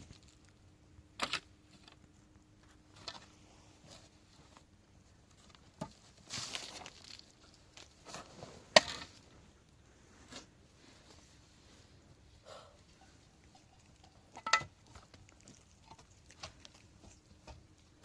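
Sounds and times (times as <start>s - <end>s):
rustling scrape: 5.3s - 12.1s.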